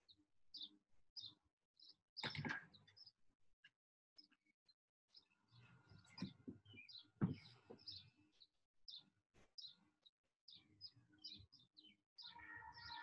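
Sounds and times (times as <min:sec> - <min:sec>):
faint bird chirps: 0:04.2 - 0:13.0.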